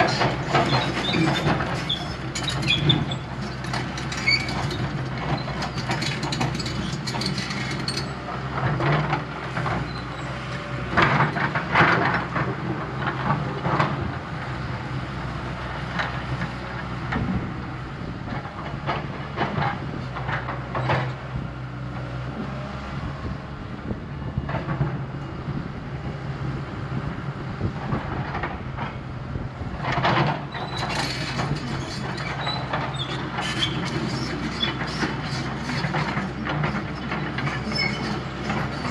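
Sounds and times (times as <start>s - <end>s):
metallic clanking and scraping: 0.0s - 13.9s, 29.8s - 38.9s
diesel engine running: 0.0s - 38.9s.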